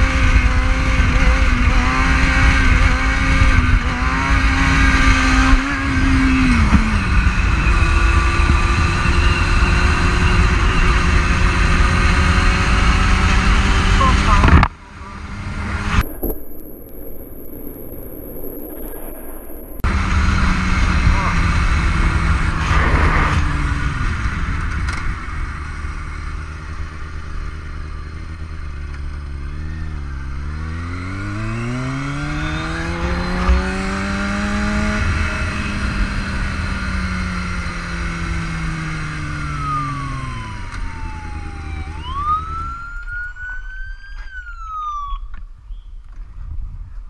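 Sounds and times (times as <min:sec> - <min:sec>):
motorcycle engine revving: 0:15.1 - 0:41.9
police siren whoops: 0:39.6 - 0:45.3.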